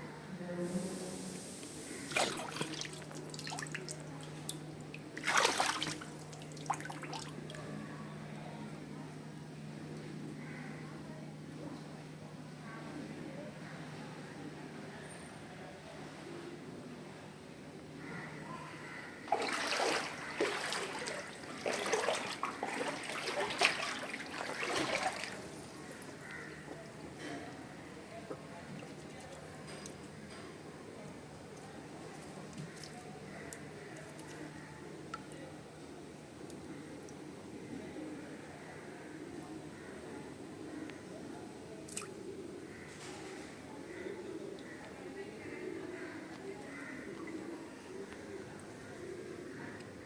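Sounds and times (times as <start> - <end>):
water splashing and dripping: 2.0 - 7.6, 19.3 - 27.2, 31.6 - 34.4, 41.9 - 42.2.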